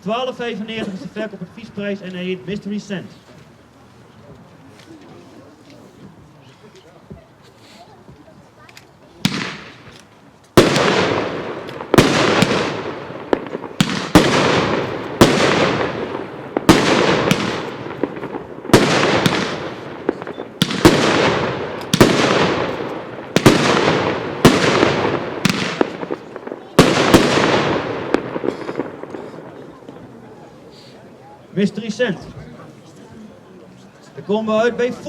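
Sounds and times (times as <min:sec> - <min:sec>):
fireworks bangs: 0:09.2 - 0:30.4.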